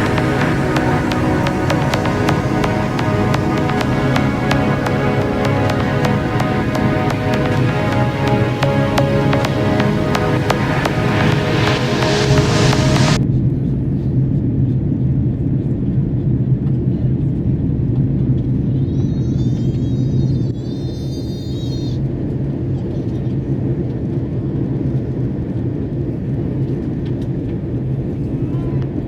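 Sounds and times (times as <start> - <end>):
faint high wavering sound: 0.0 - 13.2
low airliner cabin roar: 0.0 - 13.2
music: 0.0 - 13.2.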